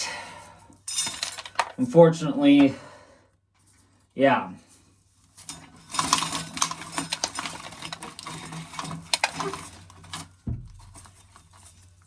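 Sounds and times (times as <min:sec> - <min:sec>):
corn kernels rattling into a can: 0:00.9 - 0:01.8, 0:05.4 - 0:12.0
dull thump: 0:10.4 - 0:11.2.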